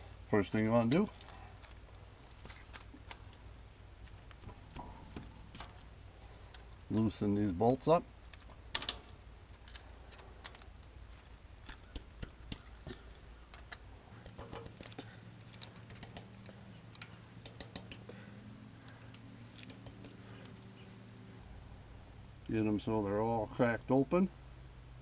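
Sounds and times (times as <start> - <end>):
wrench clicking and tapping metal: 8.7 - 18.2.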